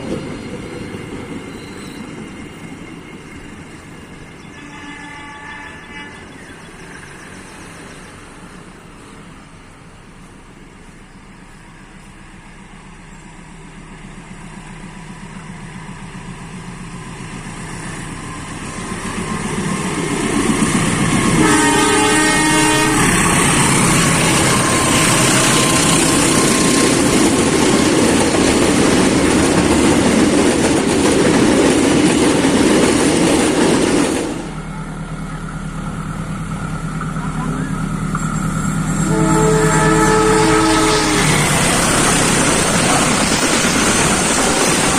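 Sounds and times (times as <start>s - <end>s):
train passing by: 0.0s - 44.9s
train rumble: 0.0s - 44.9s
train horn: 4.5s - 6.5s, 21.3s - 26.6s, 38.9s - 41.7s.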